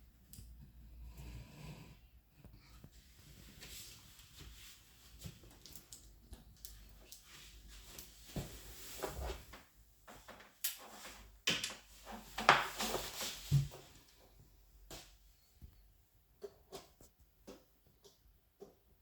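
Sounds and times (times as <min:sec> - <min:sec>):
objects knocking and rustling: 0:08.3 - 0:14.2.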